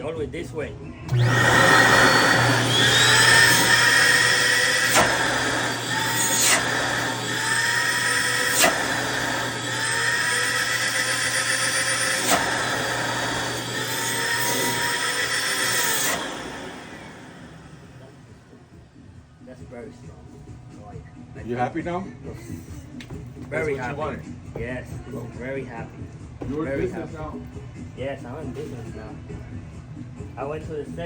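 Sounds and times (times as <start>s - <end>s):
vacuum motors whining: 1.1s - 19.2s.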